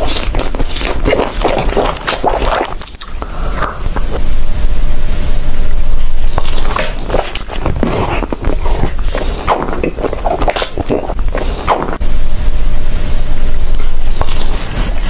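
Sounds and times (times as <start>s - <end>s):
chewing with wet mouth noises: 0.0s - 4.2s, 6.3s - 12.0s.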